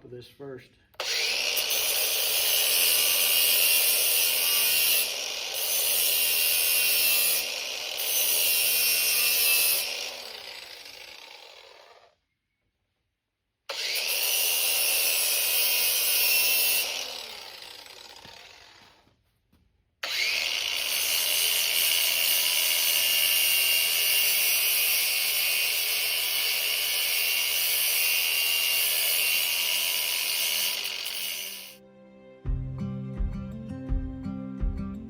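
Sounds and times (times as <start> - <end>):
angle grinder grinding steel: 1.0 - 12.2, 13.7 - 19.0, 20.0 - 31.8.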